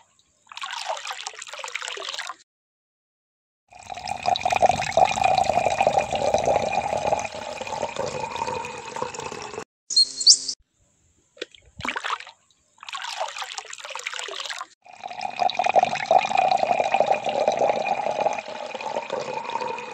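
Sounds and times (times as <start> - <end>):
water sloshing in trough: 0.5 - 2.4, 11.4 - 14.8
water pouring into metal pot: 3.7 - 9.6, 12.9 - 19.9.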